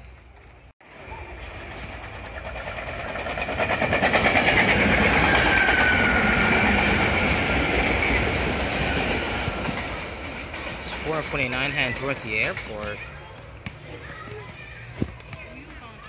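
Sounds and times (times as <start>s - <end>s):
wheels clattering over rails: 0.1s - 13.3s
electric train passing: 0.8s - 13.2s.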